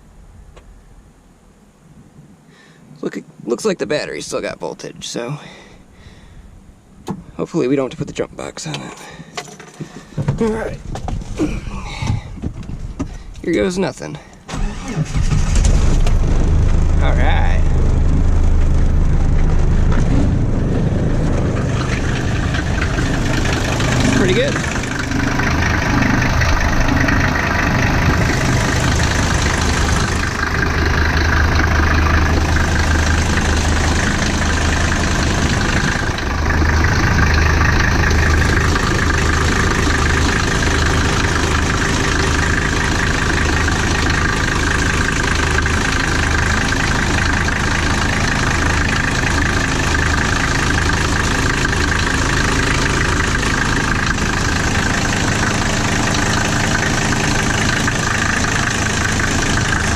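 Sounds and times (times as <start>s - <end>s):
diesel engine idling: 14.5s - 59.9s.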